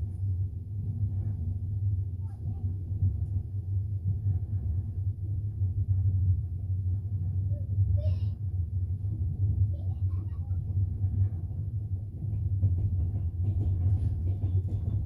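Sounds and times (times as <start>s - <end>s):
train rumbling on track: 0.0s - 15.0s.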